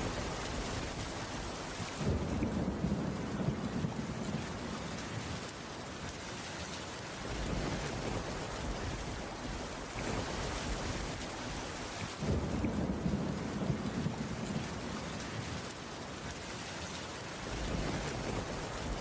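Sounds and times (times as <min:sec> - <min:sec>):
low rumble of thunder: 0:00.0 - 0:05.5, 0:07.2 - 0:11.5, 0:12.1 - 0:15.7, 0:17.4 - 0:19.0
steady rainfall: 0:00.0 - 0:19.0.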